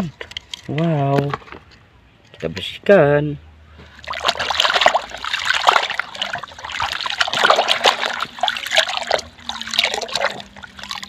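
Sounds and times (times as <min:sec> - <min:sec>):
water splashing and trickling: 0:03.7 - 0:11.0.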